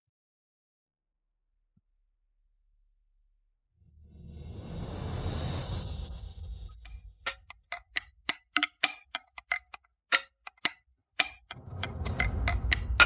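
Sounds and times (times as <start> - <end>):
low rumble: 3.9 - 7.2
ticking clicks in suspense music: 6.8 - 13.0.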